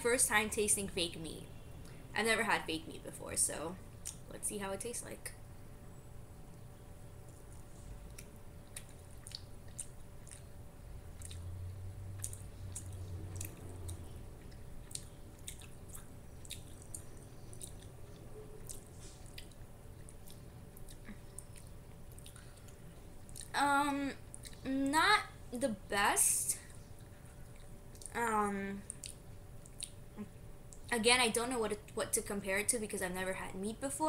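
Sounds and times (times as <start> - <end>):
faint wet mouth clicks: 28.9 - 30.0.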